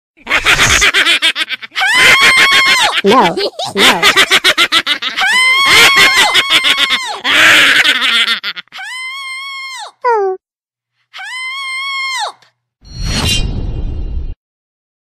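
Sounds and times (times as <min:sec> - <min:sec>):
cartoon voices screaming: 0:01.8 - 0:04.3, 0:05.2 - 0:07.8, 0:11.2 - 0:12.4.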